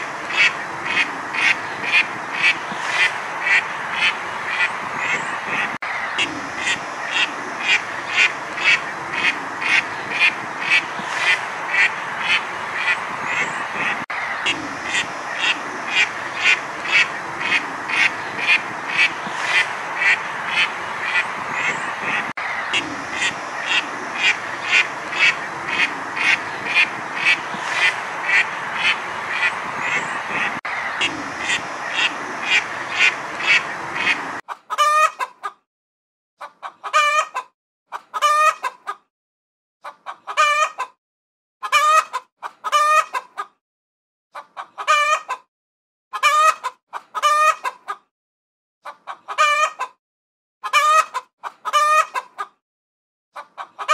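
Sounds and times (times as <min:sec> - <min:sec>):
mallard ducks quacking: 0:00.0 - 0:35.4, 0:46.2 - 0:48.0, 0:53.4 - 0:53.9
chicken calling: 0:00.0 - 0:35.5, 0:36.4 - 0:39.0, 0:39.8 - 0:40.9, 0:41.6 - 0:43.5, 0:44.4 - 0:45.4, 0:46.1 - 0:48.0, 0:48.8 - 0:50.0, 0:50.6 - 0:52.5, 0:53.4 - 0:53.9.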